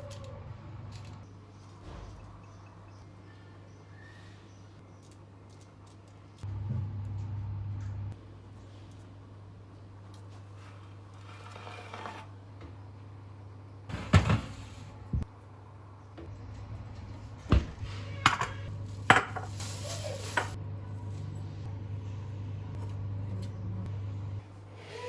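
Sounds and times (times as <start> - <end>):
dishes and utensils clinking: 18.2 - 20.6.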